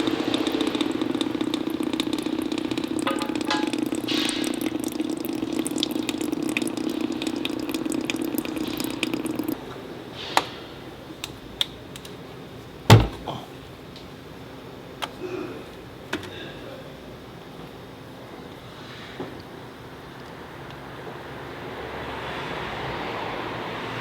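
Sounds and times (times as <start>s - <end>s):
fluid splashing into a drain pan: 0.0s - 9.6s, 12.9s - 13.4s
steady mechanical hum: 0.0s - 24.0s
loud clunk: 12.9s - 13.4s.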